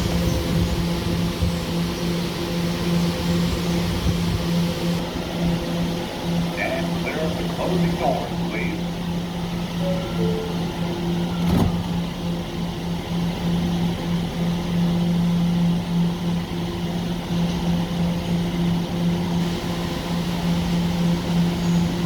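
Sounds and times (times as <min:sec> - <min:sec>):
train electrical hum: 0:00.0 - 0:22.0
train doors closing knock: 0:09.9 - 0:12.2.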